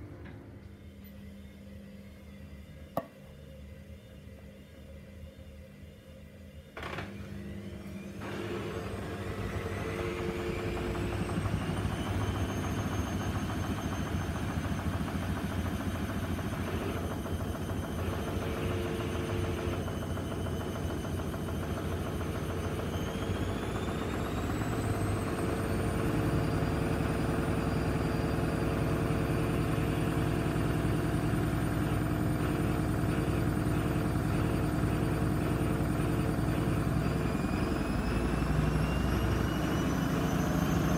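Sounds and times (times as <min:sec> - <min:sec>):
washing machine drum spinning: 0:08.3 - 0:40.9.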